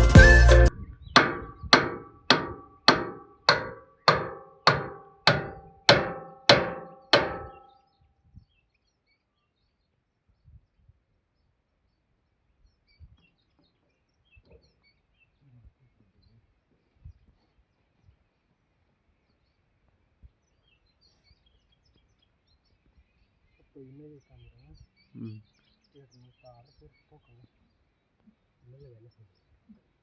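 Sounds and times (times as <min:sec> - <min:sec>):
faint low knocks: 0:01.2 - 0:07.8
ringing metallic strikes: 0:01.2 - 0:07.8.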